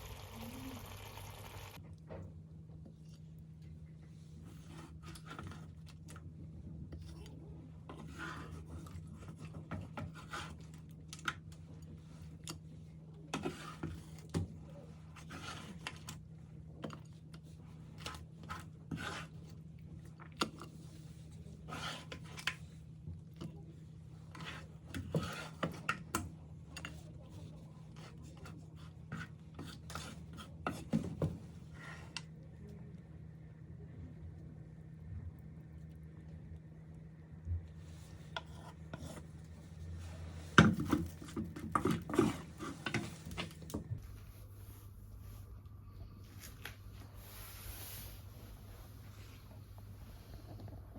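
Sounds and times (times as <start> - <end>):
scraping of food preparation: 4.0 - 32.4, 37.7 - 50.9
steady low hum: 42.8 - 50.9.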